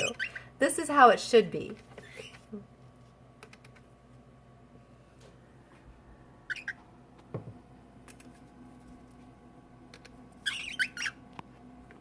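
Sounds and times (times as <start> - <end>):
cockatiels chirping: 0.0 - 0.5, 6.5 - 6.8, 10.0 - 11.2.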